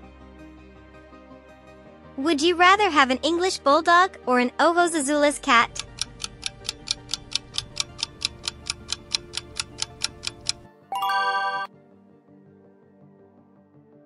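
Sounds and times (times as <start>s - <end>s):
low music bed: 4.7s - 11.7s
rapid clock-like ticking: 5.4s - 10.6s
short bright chime: 10.9s - 11.7s.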